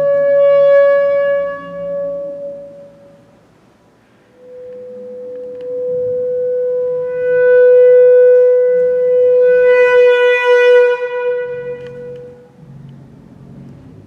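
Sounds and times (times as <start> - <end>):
bass clarinet long note: 0.0 - 3.5, 4.2 - 14.0.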